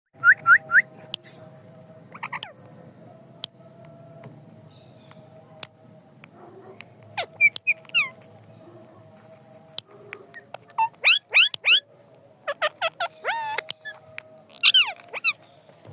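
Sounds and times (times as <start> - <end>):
faint steady hum: 0.2 - 15.9
parakeet calling: 2.1 - 2.6, 7.1 - 8.9, 10.2 - 15.6.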